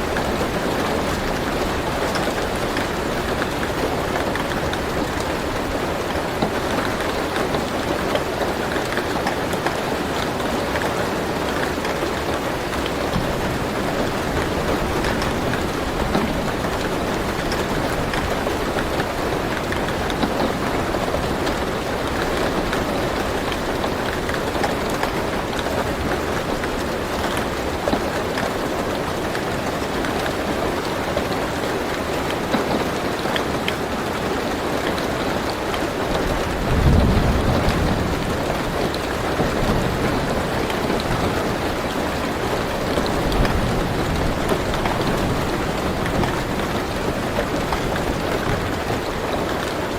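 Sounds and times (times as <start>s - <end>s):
rain on a car roof: 0.0s - 49.9s
low thunder rumble: 36.4s - 41.7s.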